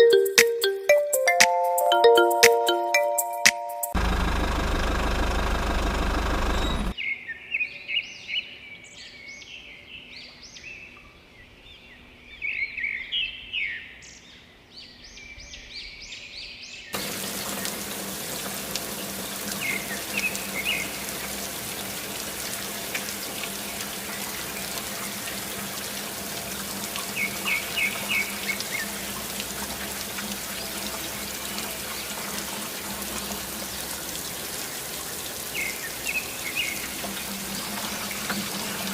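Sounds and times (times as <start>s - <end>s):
low steady hum: 4.0s - 6.9s
water rushing: 4.0s - 6.9s, 17.0s - 38.9s
birds chirping: 4.0s - 7.0s, 17.0s - 38.9s.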